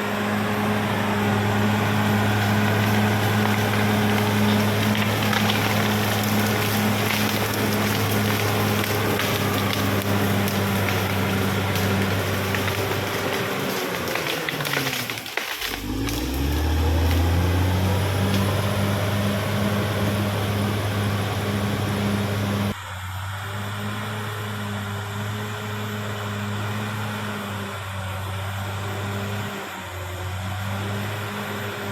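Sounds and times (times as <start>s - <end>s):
bulldozer tracks clanking: 0.0s - 22.8s
bulldozer diesel engine running: 0.0s - 31.9s.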